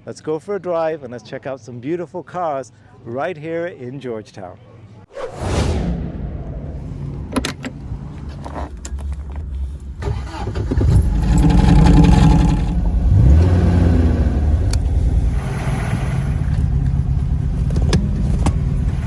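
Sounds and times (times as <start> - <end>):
car engine revving: 6.4 - 19.0.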